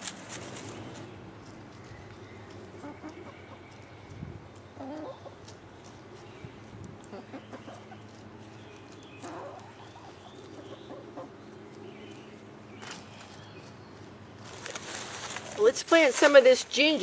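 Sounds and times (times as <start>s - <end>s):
bird clucking: 1.8s - 6.0s, 7.0s - 13.4s.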